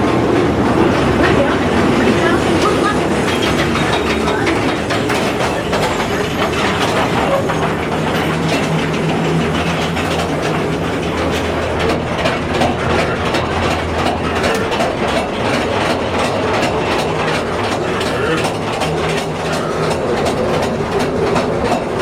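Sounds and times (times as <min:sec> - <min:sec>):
ride cars rumbling on track: 0:00.0 - 0:22.0
wheels clacking on rail joints: 0:00.0 - 0:22.0.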